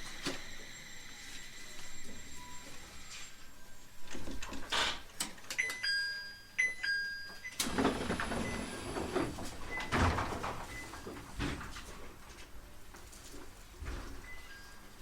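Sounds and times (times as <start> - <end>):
train doors sliding and thudding: 7.6 - 12.0.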